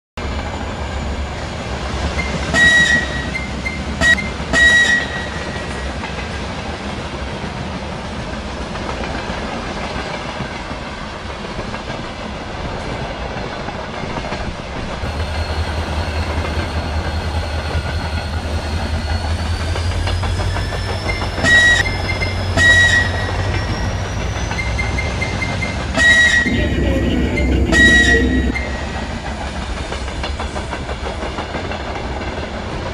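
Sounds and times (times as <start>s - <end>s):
train rumble: 0.2s - 32.9s
train horn blasts: 2.5s - 5.9s, 21.4s - 23.8s, 24.8s - 29.4s
rising whine: 26.4s - 29.9s.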